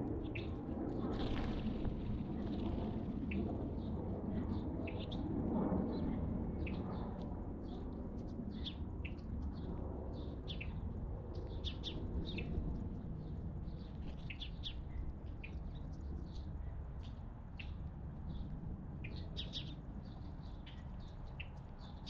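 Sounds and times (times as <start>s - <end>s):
songbirds chirping: 8.5s - 22.0s.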